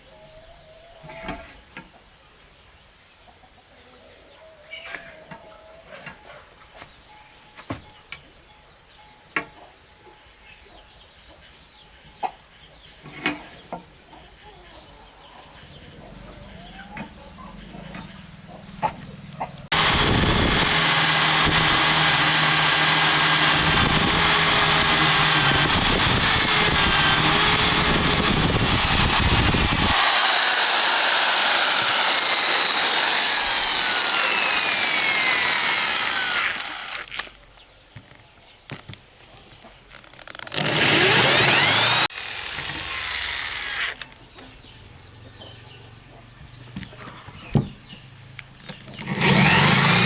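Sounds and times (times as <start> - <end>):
power saw cutting wood: 19.7 - 37.4, 40.2 - 44.1, 49.0 - 50.0.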